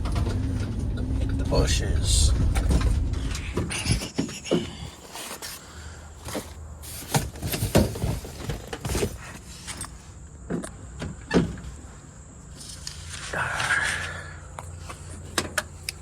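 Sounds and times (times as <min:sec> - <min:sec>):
low hum: 0:00.0 - 0:06.7.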